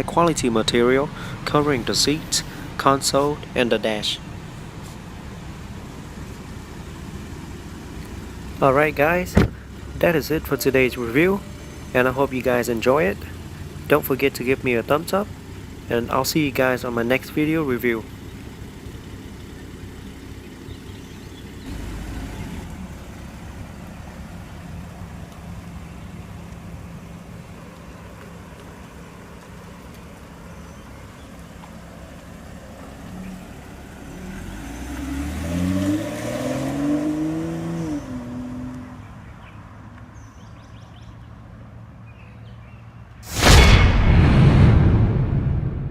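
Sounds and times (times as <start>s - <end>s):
car engine idling: 0.0s - 42.6s
sudden loud burst: 43.2s - 45.9s.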